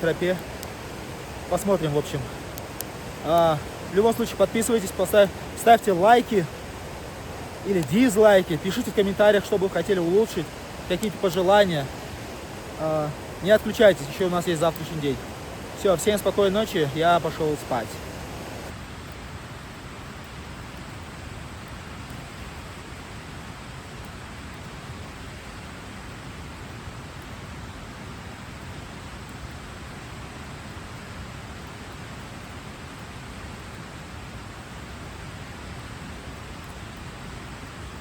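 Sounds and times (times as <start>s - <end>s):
steady rushing noise: 0.0s - 18.8s.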